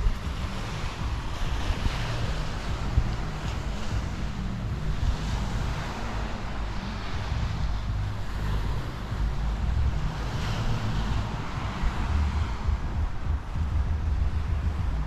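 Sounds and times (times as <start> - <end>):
sea surf rushing: 0.0 - 15.0
wind buffeting microphone: 0.0 - 15.0.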